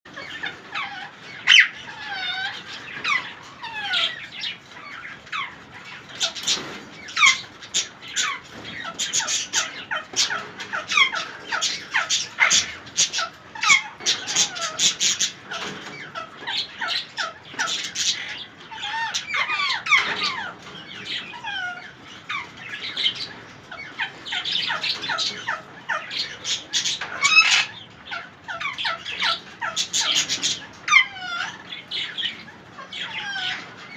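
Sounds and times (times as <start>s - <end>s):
parakeets squawking: 0.1s - 33.9s.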